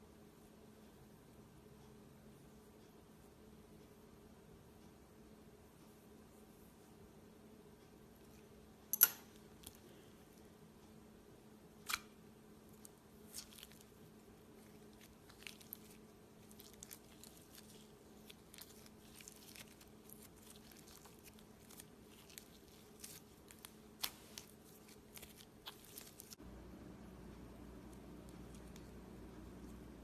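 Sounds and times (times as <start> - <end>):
steady low hum: 0.0 - 30.0
slime crackling and popping: 14.7 - 26.4.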